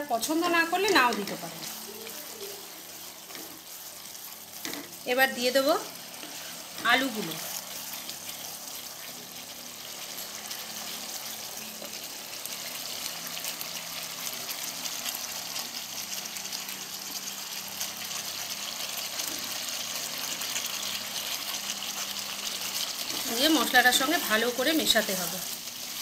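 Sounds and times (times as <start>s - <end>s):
masala sizzling in hot oil: 0.0s - 26.0s
wooden spatula stirring: 0.1s - 13.6s, 21.9s - 26.0s.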